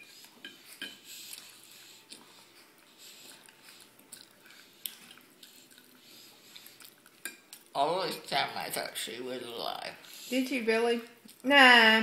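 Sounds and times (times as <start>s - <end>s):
faint chewing: 0.0s - 8.3s.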